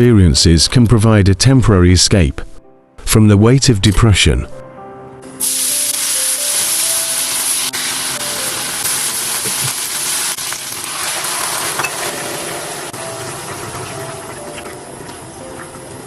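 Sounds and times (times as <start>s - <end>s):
food sizzling in a pan: 5.4s - 15.3s.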